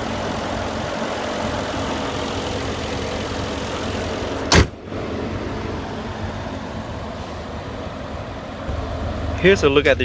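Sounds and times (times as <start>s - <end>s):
car engine idling: 0.0s - 10.0s
dull steady noise: 4.8s - 10.0s.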